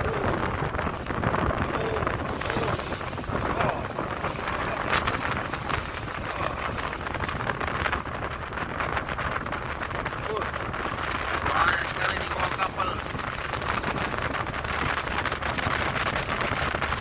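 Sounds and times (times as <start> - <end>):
faint voices: 0.0 - 7.6
sea water rushing along hull: 0.0 - 17.0
wind buffeting microphone: 0.0 - 17.0.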